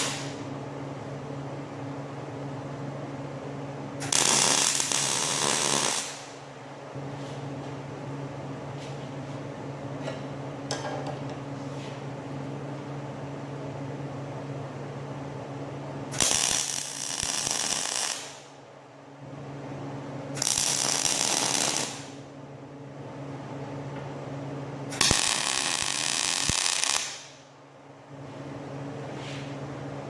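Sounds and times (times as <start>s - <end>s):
crackling arc welds: 0.0s - 0.5s, 4.0s - 6.5s, 16.1s - 18.6s, 20.3s - 22.3s, 24.9s - 27.5s
welder humming: 0.0s - 0.5s, 4.0s - 6.6s, 16.1s - 18.5s, 20.4s - 22.3s, 24.9s - 27.4s.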